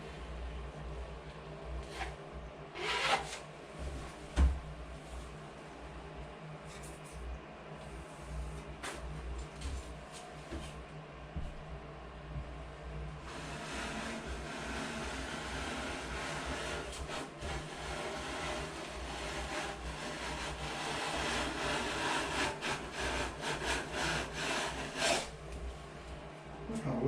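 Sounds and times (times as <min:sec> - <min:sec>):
hand tool scraping drywall compound: 0:13.3 - 0:25.4.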